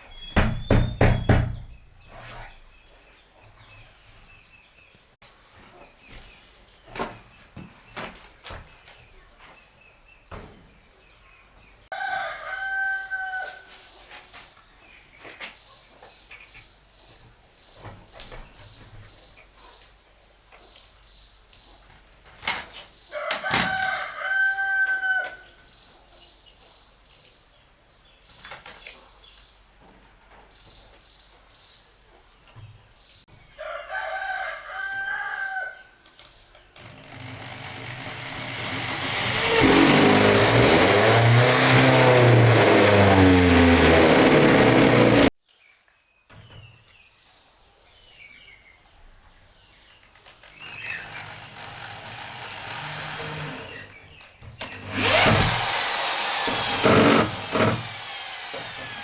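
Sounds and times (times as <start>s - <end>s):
rooster crowing: 11.9s - 13.7s, 23.2s - 25.5s, 33.6s - 36.0s.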